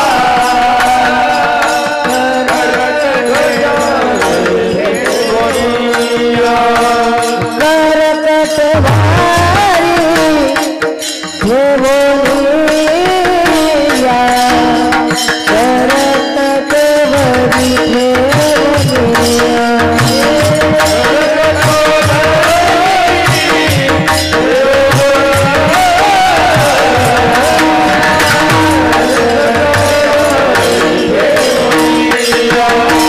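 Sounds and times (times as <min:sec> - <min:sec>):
man singing: 0:00.0 - 0:33.0
small hand cymbals clashing: 0:09.5 - 0:33.0.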